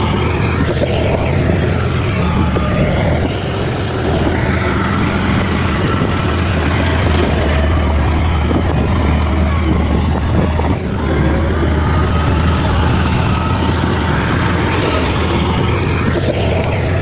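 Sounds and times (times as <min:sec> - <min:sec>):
bulldozer diesel engine drone: 0:00.0 - 0:17.0
clattering noise: 0:00.0 - 0:17.0.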